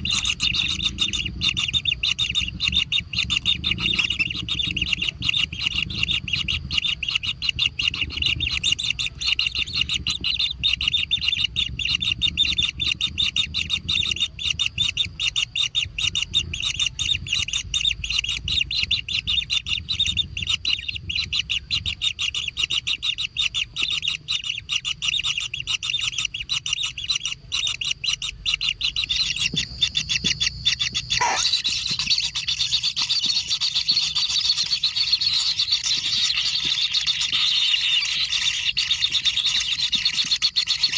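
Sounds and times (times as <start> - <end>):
nestlings chattering: 0.0 - 40.9.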